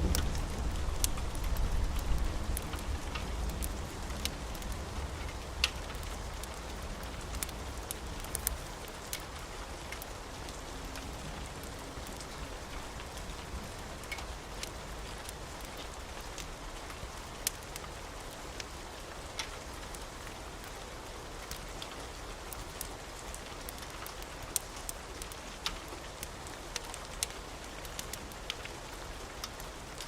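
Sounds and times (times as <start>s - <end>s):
low thunder rumble: 0.0s - 4.1s
steady rain: 0.0s - 30.0s
wood fire crackles: 0.0s - 30.0s.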